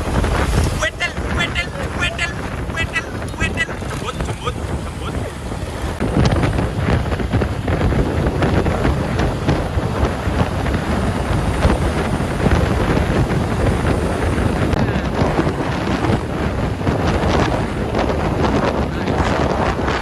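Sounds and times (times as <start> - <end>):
truck moving: 0.0 - 20.0
wind buffeting microphone: 0.0 - 20.0.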